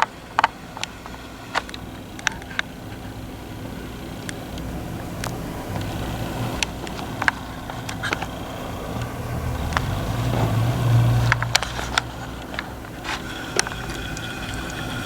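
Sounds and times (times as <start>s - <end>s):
car passing rumble: 7.2s - 15.0s.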